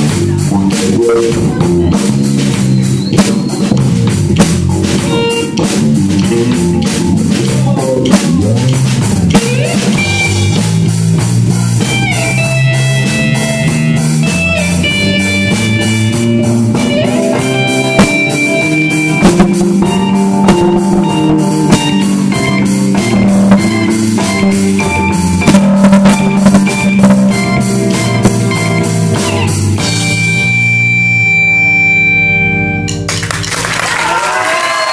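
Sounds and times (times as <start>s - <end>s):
bass guitar: 0.0s - 34.9s
drum kit: 0.0s - 34.9s
electric guitar: 0.0s - 34.9s.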